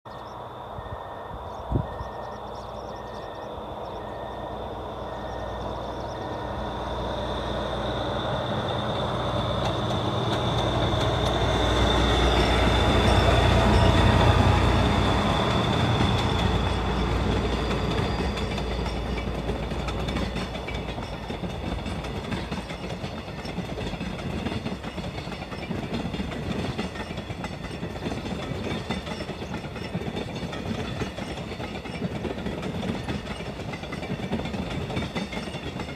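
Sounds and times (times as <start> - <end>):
locomotive engine passing: 0.2 - 35.9
train wheels rumbling on rails: 0.2 - 35.9
short repeated beeping: 0.8 - 6.6.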